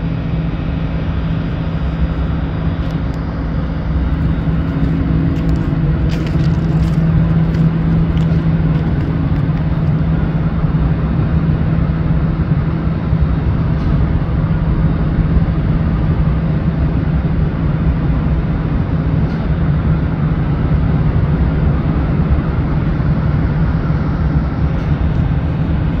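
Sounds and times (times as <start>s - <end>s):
constant hum: 0.0s - 26.0s
freight train rumbling: 0.0s - 26.0s.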